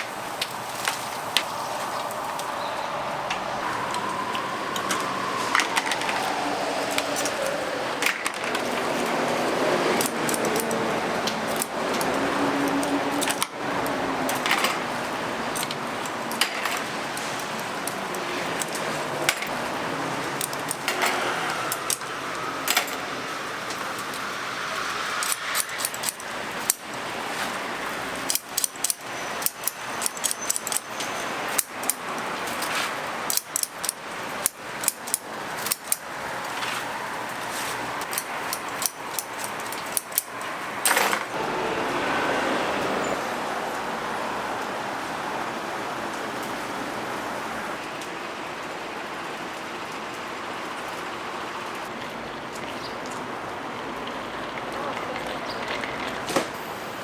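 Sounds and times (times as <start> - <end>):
steady background noise: 0.0 - 57.0
falling tone: 0.6 - 8.7.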